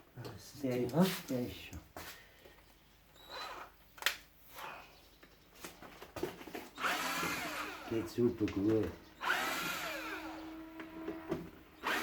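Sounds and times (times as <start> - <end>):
power drill running: 6.7 - 8.1, 9.2 - 12.0.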